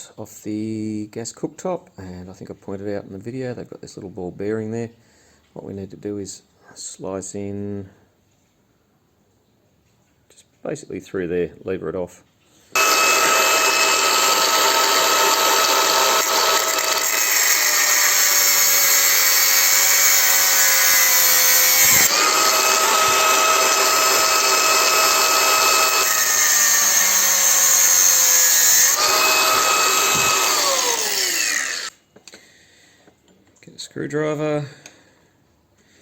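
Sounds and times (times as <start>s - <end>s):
cutting disc whining through metal: 12.8s - 31.9s.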